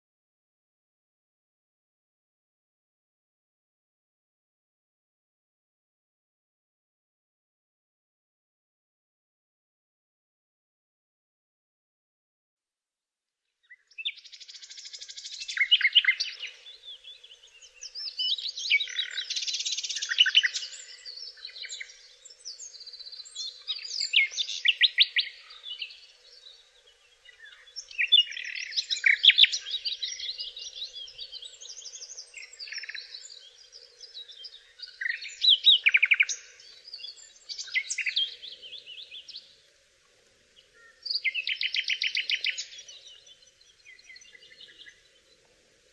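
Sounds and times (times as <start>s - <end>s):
songbird trilling: 14.0s - 26.5s, 27.2s - 39.4s, 40.6s - 45.0s.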